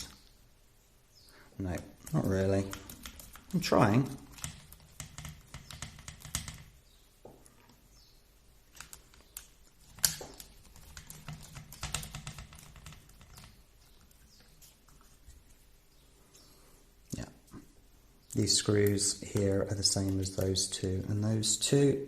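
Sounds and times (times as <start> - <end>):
screwdriver and plastic parts clicking: 8.7 - 13.5.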